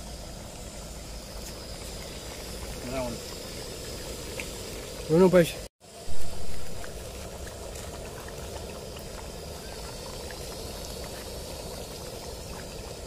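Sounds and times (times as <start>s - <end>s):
chicken deep-frying in oil: 0.0s - 13.0s
low steady rumble: 0.0s - 13.0s.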